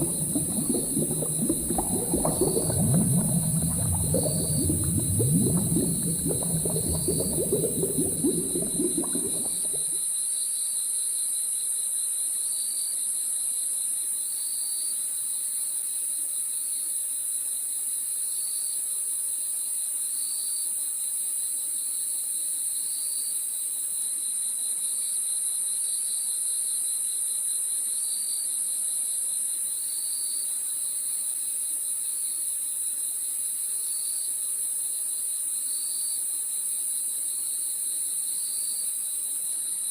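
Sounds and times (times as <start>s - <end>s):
crickets chirping: 0.0s - 10.0s
low rough rumbling: 0.0s - 10.0s.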